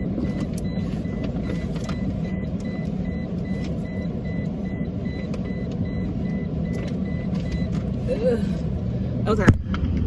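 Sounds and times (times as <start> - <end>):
seatbelt reminder chime beeping: 0.0 - 7.8.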